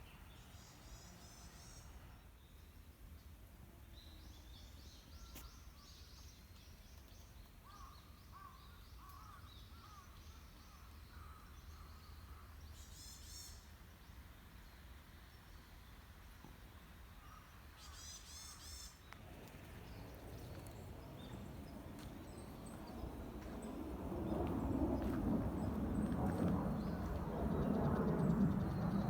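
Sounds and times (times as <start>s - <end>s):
low steady rumble: 19.2s - 29.0s.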